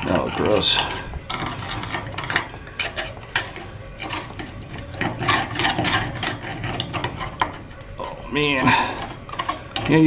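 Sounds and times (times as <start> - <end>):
metal rod scraping in valve: 0.0 - 7.8.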